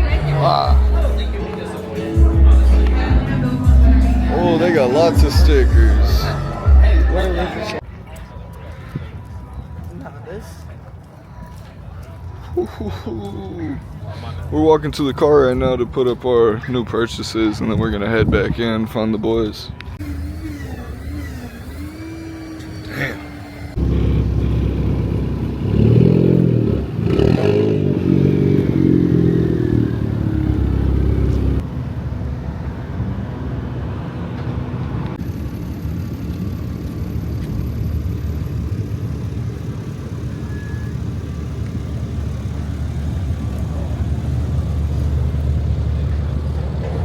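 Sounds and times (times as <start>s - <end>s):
falling whine: 20.0s - 25.2s
engine revving: 20.0s - 31.6s.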